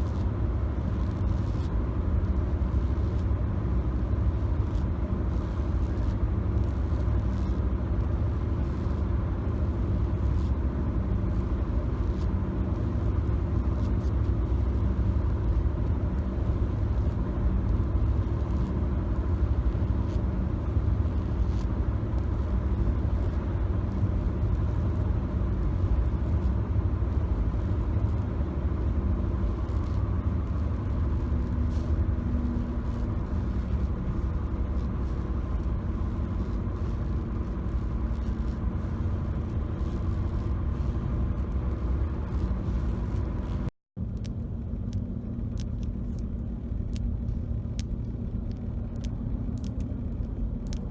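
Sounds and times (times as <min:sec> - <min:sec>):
car cabin road rumble: 0:11.2 - 0:50.9
faint clicks: 0:43.4 - 0:50.9.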